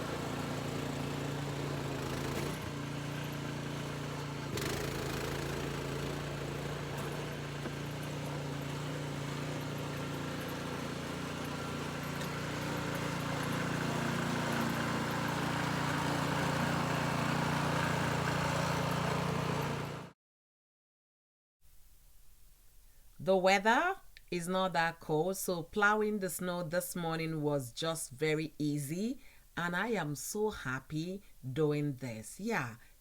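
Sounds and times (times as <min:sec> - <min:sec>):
snowblower engine running: 0:00.0 - 0:20.2.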